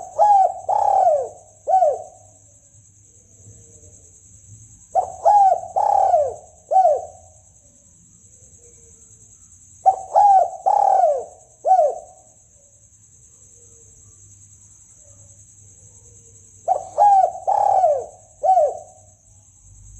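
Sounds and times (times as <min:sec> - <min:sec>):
dove cooing: 0:00.0 - 0:02.4, 0:04.9 - 0:07.3, 0:09.8 - 0:12.3, 0:16.6 - 0:19.0.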